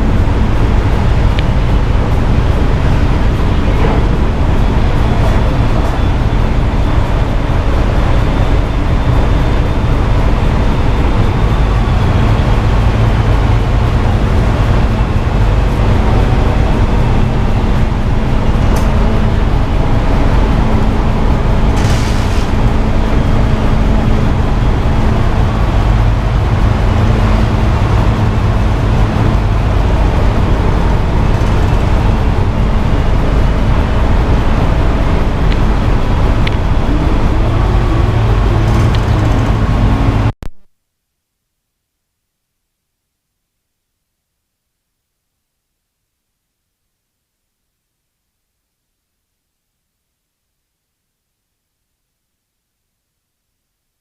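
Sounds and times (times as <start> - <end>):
vehicle engine and road noise: 0.0 - 40.5
brief high hiss: 21.8 - 22.6.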